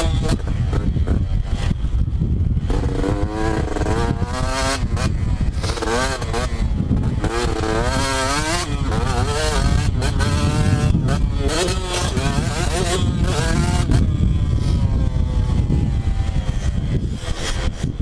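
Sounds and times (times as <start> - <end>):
dirt bike engine revving: 0.0 - 18.0
heavy low rumble: 8.6 - 18.0.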